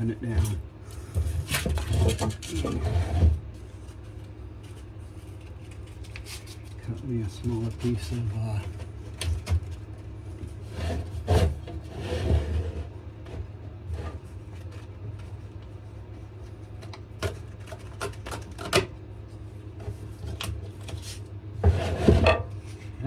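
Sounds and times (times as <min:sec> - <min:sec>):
paper rustling: 0:03.5 - 0:09.9.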